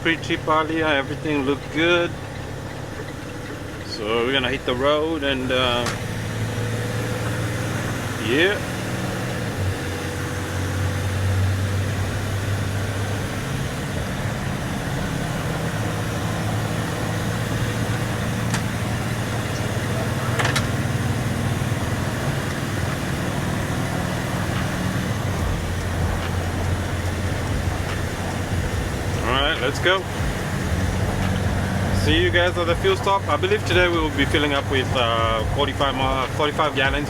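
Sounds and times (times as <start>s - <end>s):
truck engine idling: 0.0s - 37.0s.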